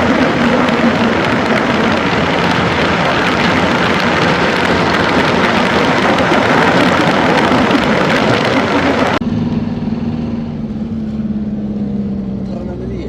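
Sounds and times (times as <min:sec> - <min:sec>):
loud rushing noise: 0:00.0 - 0:09.5
vehicle engine hum: 0:00.0 - 0:13.0.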